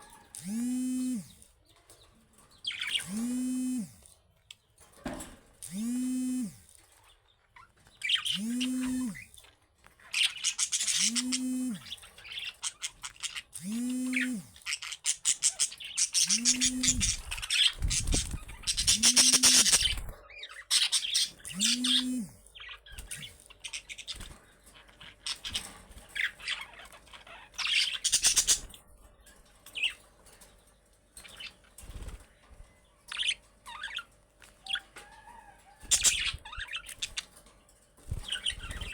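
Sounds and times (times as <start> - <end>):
wing flutters: 0.0 - 1.4, 2.6 - 4.2, 5.6 - 30.0, 31.2 - 38.9
budgerigars chirping: 8.0 - 9.3, 10.1 - 28.8, 33.1 - 37.3, 38.1 - 38.9.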